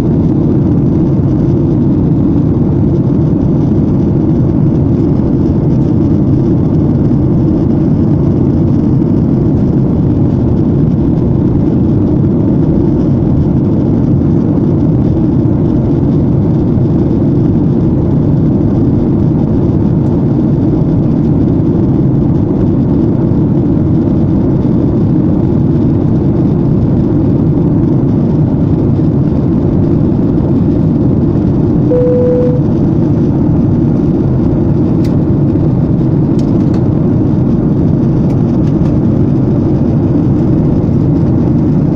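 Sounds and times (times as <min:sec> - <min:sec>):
airliner cabin engine rumble: 0:00.0 - 0:41.9
short single tone: 0:31.9 - 0:32.8.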